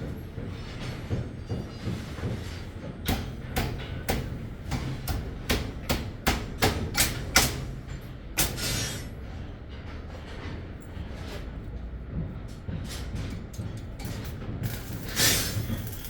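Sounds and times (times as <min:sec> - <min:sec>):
hammer knocking: 0:01.1 - 0:07.6.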